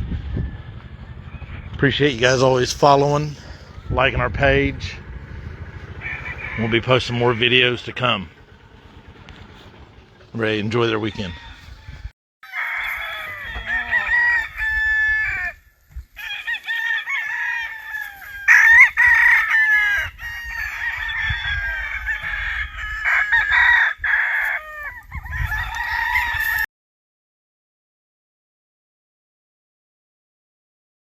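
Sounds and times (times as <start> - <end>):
roosters crowing: 0.1 - 26.7
chickens clucking: 0.6 - 10.3, 11.0 - 12.0.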